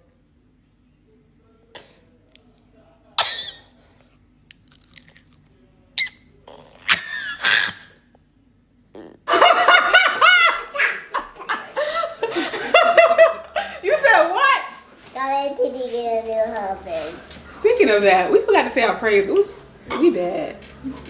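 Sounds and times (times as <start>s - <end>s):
people laughing: 9.3s - 14.5s.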